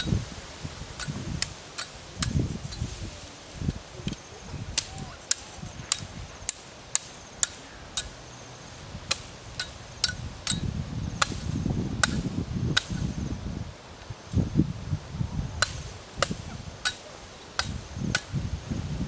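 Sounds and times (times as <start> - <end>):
sharp chopping strikes: 9.1 - 13.1, 15.6 - 18.4.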